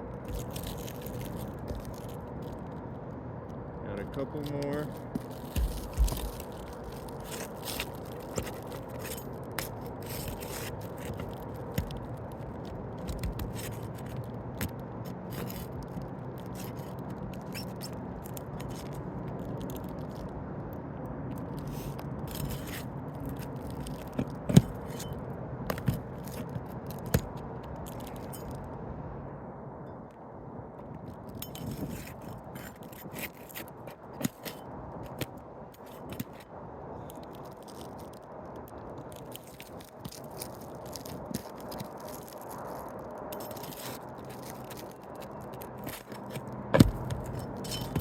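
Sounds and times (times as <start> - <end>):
hand tool scraping roof shingles: 4.8 - 12.0, 31.5 - 36.4, 43.4 - 48.0.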